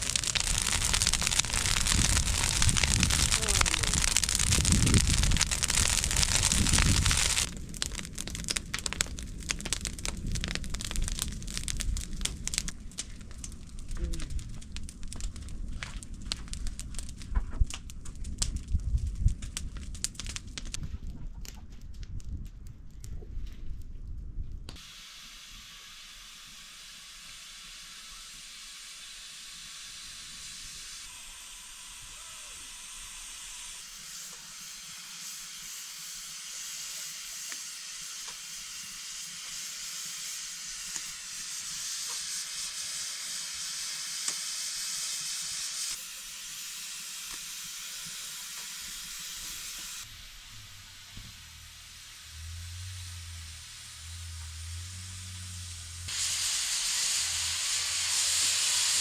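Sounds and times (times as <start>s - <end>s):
food sizzling in hot oil: 0.0s - 12.6s, 24.8s - 59.0s
faint crackles: 0.0s - 24.8s.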